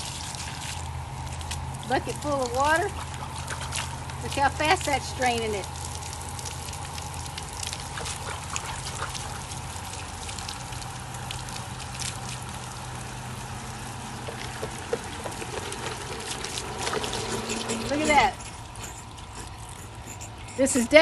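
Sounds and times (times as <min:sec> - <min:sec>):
pump motor hum: 0:00.0 - 0:21.0
water pouring: 0:05.7 - 0:18.5.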